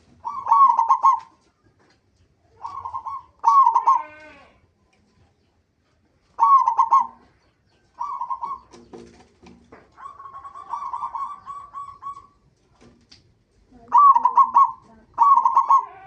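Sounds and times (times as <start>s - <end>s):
dove cooing: 0.0s - 1.5s, 2.5s - 4.5s, 6.3s - 9.2s, 9.8s - 12.5s, 13.7s - 16.0s.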